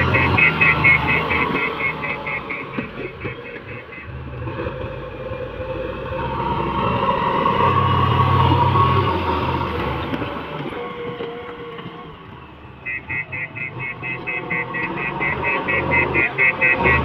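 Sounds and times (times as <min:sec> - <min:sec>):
rapid high-pitched ticking: 0:00.0 - 0:04.1, 0:12.8 - 0:17.0
excavator diesel engine running: 0:00.0 - 0:17.0.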